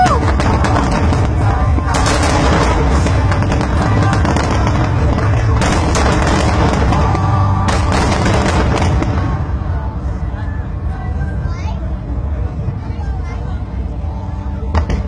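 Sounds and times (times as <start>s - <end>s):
firework crackling: 0.0s - 10.0s
firework booms: 0.2s - 9.5s.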